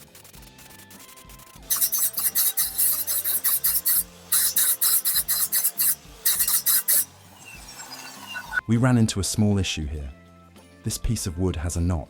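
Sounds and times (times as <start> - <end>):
saw blade scraping wood: 1.7 - 8.2.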